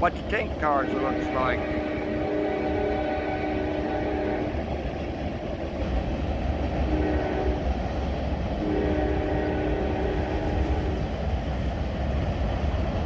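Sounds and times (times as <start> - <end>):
freight train rumbling on rails: 0.0 - 13.0
locomotive air horn: 0.8 - 4.6, 6.8 - 7.6, 8.6 - 10.7.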